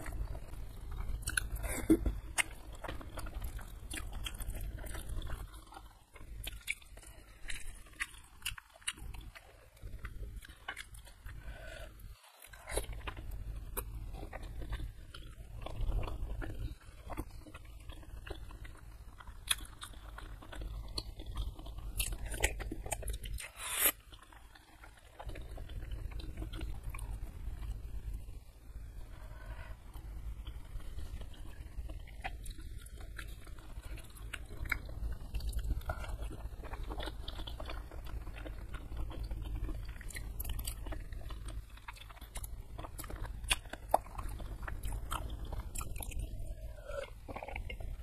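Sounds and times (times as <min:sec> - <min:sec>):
wet chewing sounds: 0:00.0 - 0:48.0.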